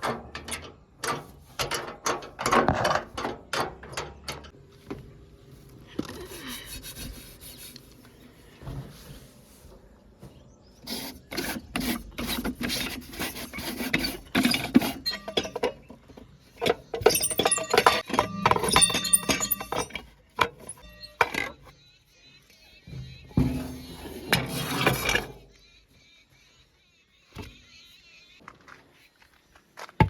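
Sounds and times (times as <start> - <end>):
stones clattering into steel trolley: 14.1 - 20.8.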